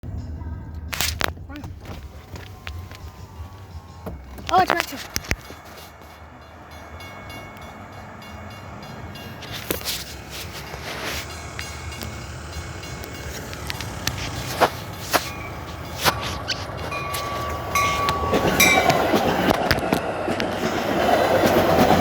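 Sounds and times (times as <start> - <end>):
train rumble approaching: 0.0 - 22.0
sharp clicks: 10.6 - 20.6.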